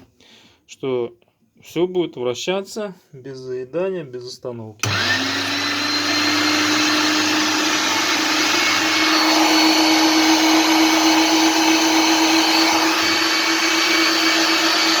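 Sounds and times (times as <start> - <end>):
meat grinder motor whirring: 4.8 - 15.0.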